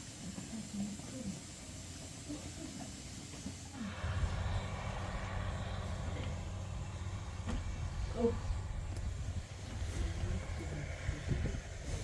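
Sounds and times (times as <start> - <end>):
constant hiss: 0.0 - 12.0
low engine rumble: 3.8 - 12.0.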